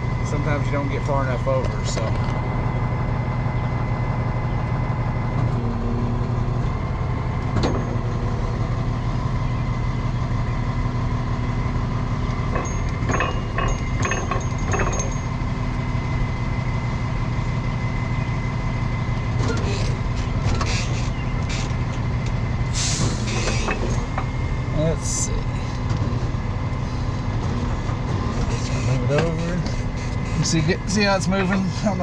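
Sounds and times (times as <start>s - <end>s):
tow truck engine idling: 0.0s - 32.0s
metal clanks and rattles: 7.4s - 8.2s, 12.4s - 15.9s, 19.3s - 24.4s.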